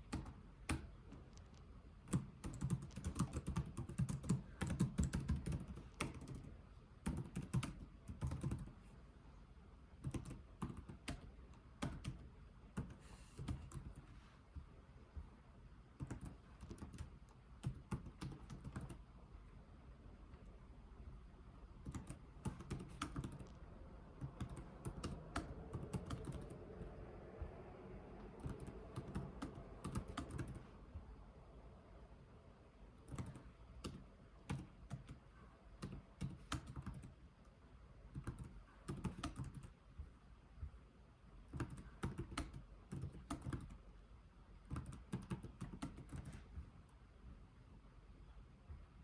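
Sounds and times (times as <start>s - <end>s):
keyboard typing: 0.0s - 8.8s, 10.0s - 14.2s, 16.0s - 19.1s, 21.8s - 27.0s, 28.2s - 30.7s, 33.0s - 37.2s, 38.1s - 39.8s, 41.5s - 43.8s, 44.6s - 46.5s.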